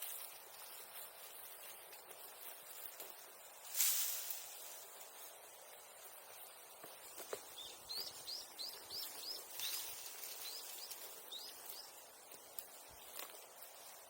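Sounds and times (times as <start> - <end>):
small bird chirping: 7.0 - 13.1.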